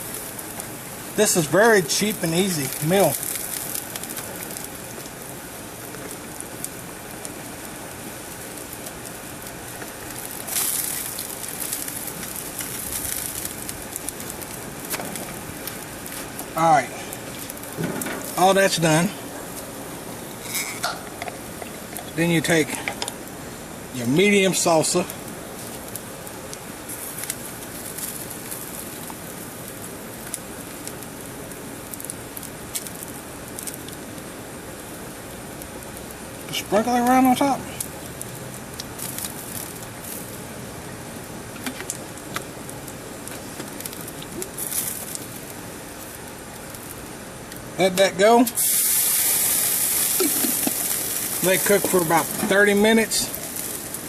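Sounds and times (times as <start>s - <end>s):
gas grill burners hissing: 0.0s - 54.0s.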